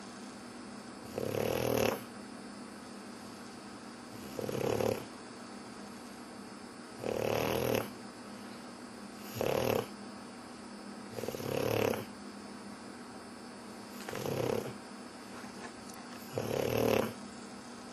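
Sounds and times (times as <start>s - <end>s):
dog snoring: 1.0s - 2.1s, 4.1s - 5.1s, 6.9s - 8.0s, 9.1s - 10.0s, 11.1s - 12.2s, 13.9s - 14.8s, 16.2s - 17.2s.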